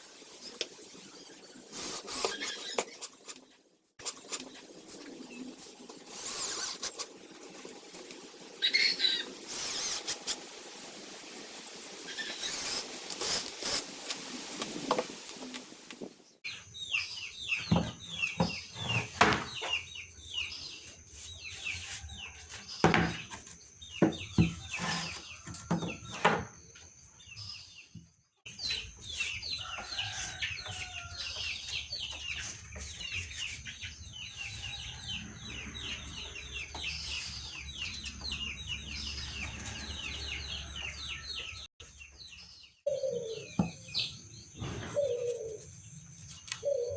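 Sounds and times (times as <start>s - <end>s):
small birds chirping: 16.2s - 46.9s.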